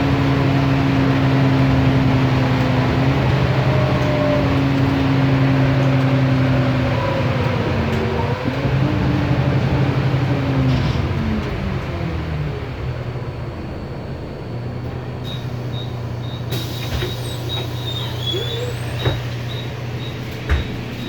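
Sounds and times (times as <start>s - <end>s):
diesel bus engine idling: 0.0s - 21.0s
high door-warning beeping: 15.3s - 21.0s.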